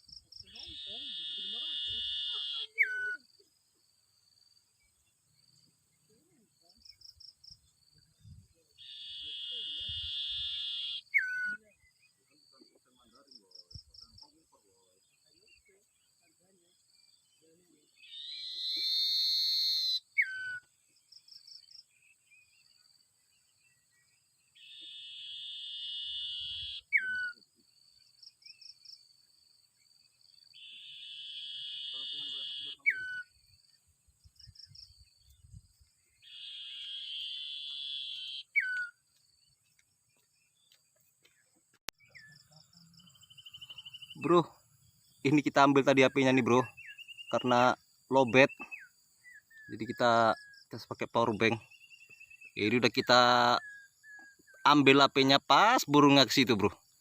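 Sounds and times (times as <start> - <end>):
bird buzzing trill: 0.0 - 3.0, 8.8 - 11.3, 24.6 - 27.1, 30.4 - 33.6, 34.3 - 39.6
faint high bird chirps: 0.0 - 57.0
insects chirping: 0.0 - 57.0.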